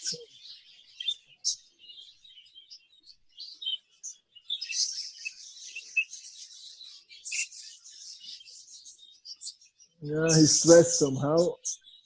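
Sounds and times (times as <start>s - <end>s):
budgerigars chirping: 3.4s - 12.0s.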